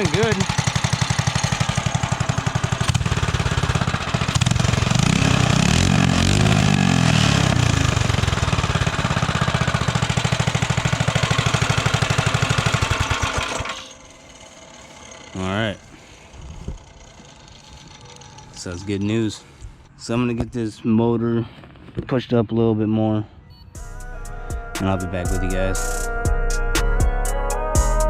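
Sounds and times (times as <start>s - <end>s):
small engine running: 0.0s - 19.9s.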